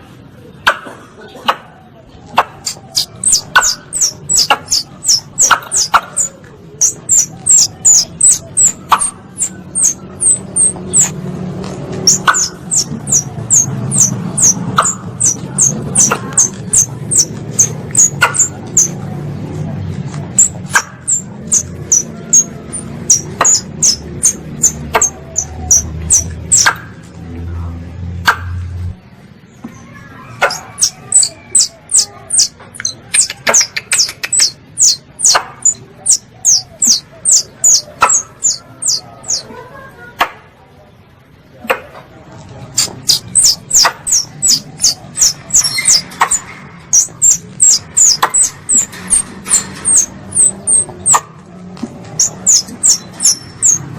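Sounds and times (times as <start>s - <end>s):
high sliding chirps: 2.6s - 11.2s, 12.0s - 19.0s, 20.3s - 26.7s, 30.4s - 39.5s, 42.8s - 51.2s, 52.2s - 53.9s.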